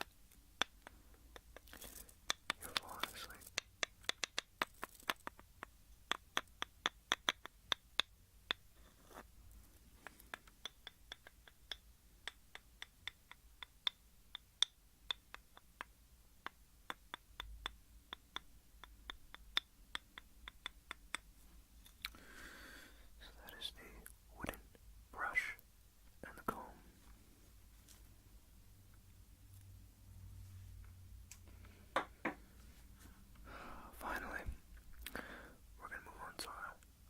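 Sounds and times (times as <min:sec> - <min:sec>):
light tapping on hard object: 0:02.3 - 0:08.6, 0:31.9 - 0:32.4.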